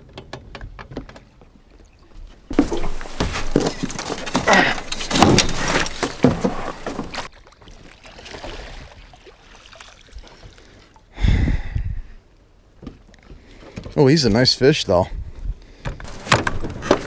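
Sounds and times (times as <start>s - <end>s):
water splashing: 2.5s - 10.8s.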